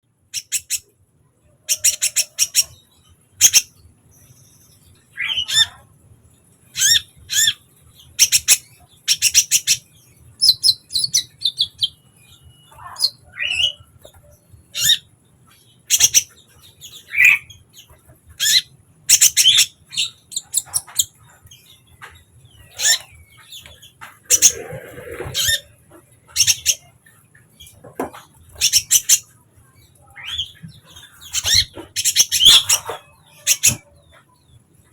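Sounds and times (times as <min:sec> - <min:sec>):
rising bird chirps: 0:24.3 - 0:25.9.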